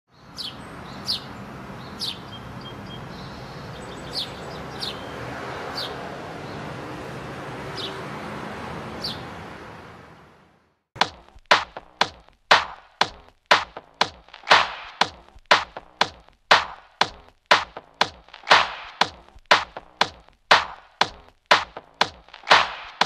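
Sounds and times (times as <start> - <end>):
birds chirping: 0.1 - 10.3.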